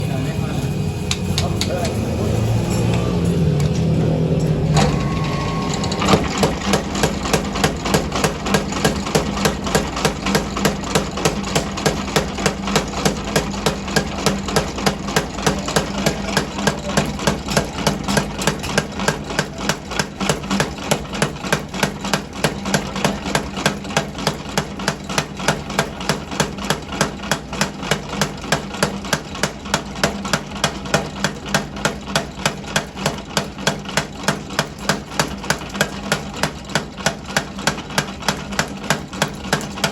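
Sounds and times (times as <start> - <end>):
continuous motor hum: 0.0 - 39.9
hammer blows on steel: 4.7 - 23.4.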